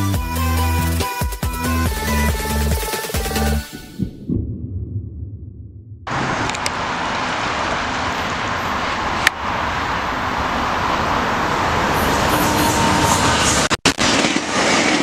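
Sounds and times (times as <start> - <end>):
passenger train rumbling: 6.1 - 15.0.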